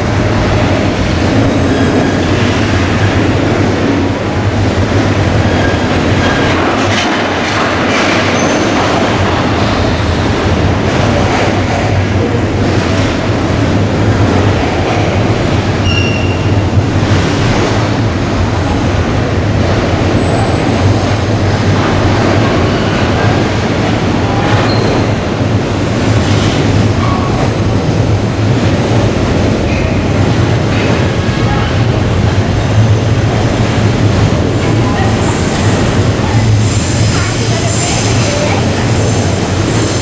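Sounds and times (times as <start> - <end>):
freight train rolling past: 0.0 - 40.0
high wheel squeals: 15.8 - 16.6.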